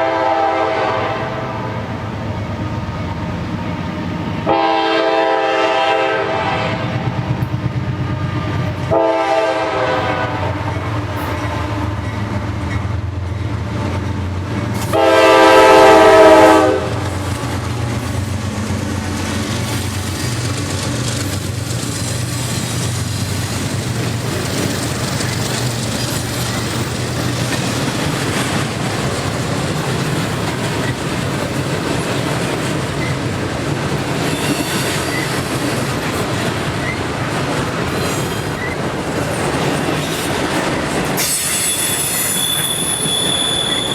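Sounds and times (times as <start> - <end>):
locomotive horn blast: 0.0 - 1.8, 4.4 - 7.1, 8.9 - 10.6, 14.9 - 17.2
train wheels on rails: 0.0 - 43.9.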